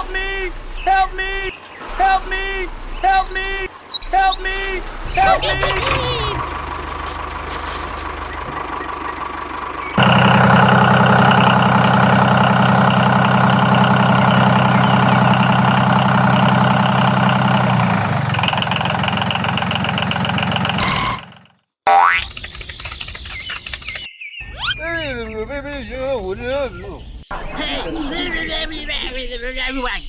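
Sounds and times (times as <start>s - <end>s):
small engine running: 4.4s - 21.6s.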